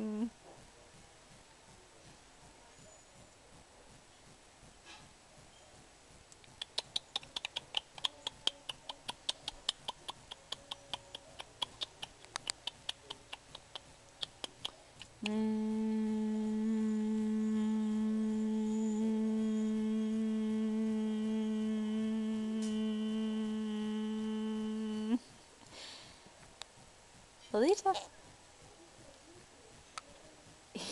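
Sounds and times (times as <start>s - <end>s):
person humming low note: 0.0s - 0.4s, 15.1s - 25.4s.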